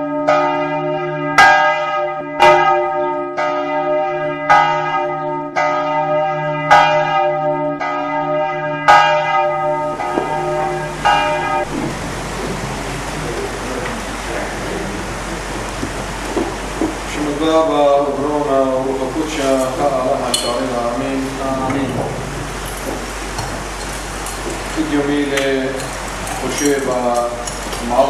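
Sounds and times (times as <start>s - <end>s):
church bell tolling: 0.0s - 13.7s, 17.2s - 22.9s
steady hiss: 9.7s - 28.0s.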